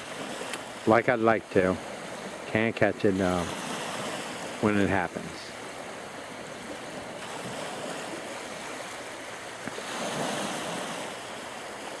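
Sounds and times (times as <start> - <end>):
small waves breaking: 0.0 - 12.0.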